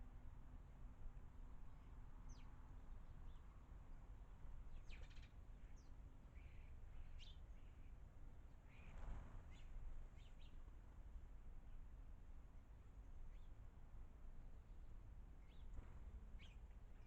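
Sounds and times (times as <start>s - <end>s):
small birds chirping: 4.7s - 7.9s, 8.7s - 10.6s.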